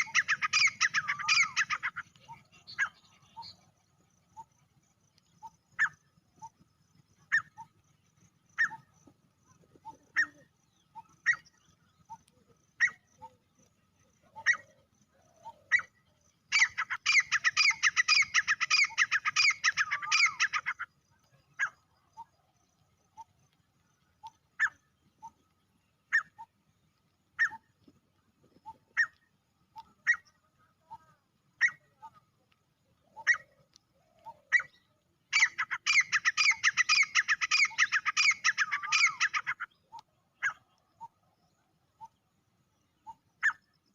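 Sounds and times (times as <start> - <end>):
francolin calling: 0.0 - 4.6, 8.5 - 22.4, 27.3 - 27.7, 28.6 - 32.4, 33.0 - 42.2.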